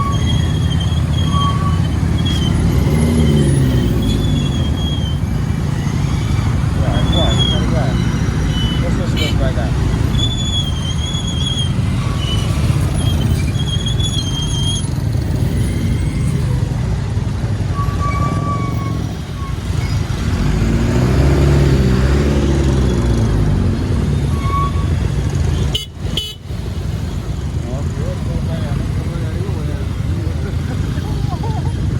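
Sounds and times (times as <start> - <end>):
large vehicle engine passing: 19.0 - 24.3.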